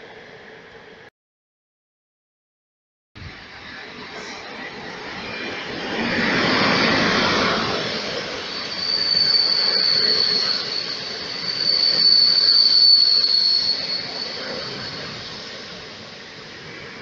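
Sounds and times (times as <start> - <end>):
train passing with rushing rumble: 0.0 - 1.1, 3.2 - 17.0
high wheel squeal: 3.4 - 17.0.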